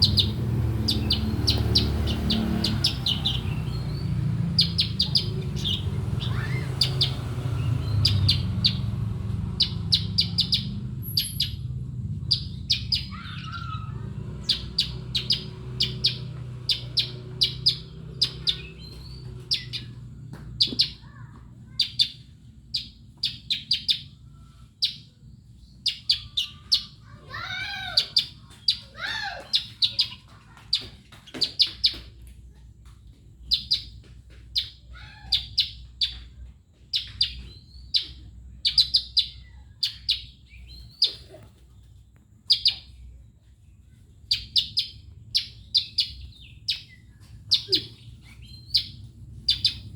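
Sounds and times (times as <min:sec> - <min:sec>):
bird chirping sharply: 0:00.0 - 0:20.0, 0:24.8 - 0:30.2, 0:36.9 - 0:41.4, 0:44.3 - 0:49.9.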